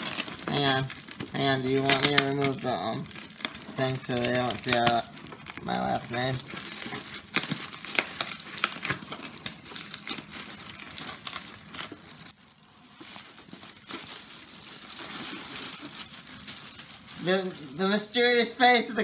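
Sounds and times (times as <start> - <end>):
packaging crinkling and rustling: 0.0 - 19.0.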